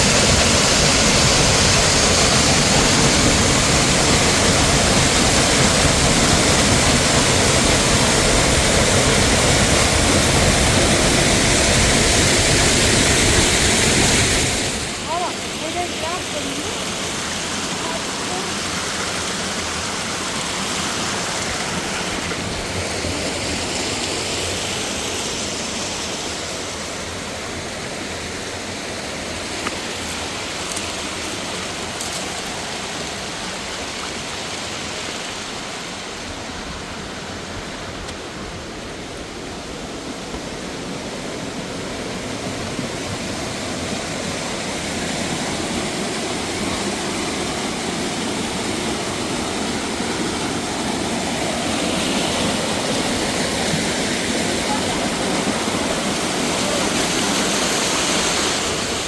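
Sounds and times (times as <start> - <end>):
water rushing over rocks: 0.0 - 59.0.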